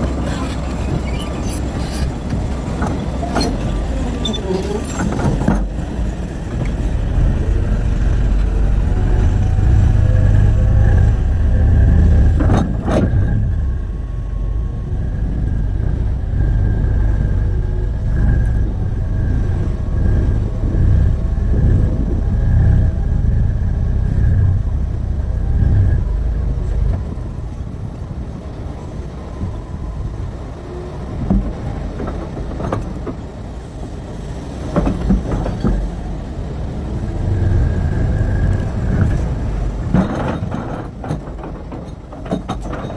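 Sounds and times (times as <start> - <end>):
excavator diesel engine rumbling: 0.0 - 42.9.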